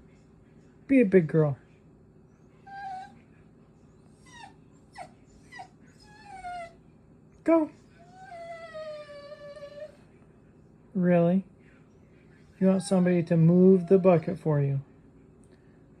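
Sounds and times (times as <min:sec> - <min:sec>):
small dog whimpering: 0:02.6 - 0:03.3, 0:04.1 - 0:06.8, 0:08.0 - 0:10.0, 0:12.6 - 0:14.4.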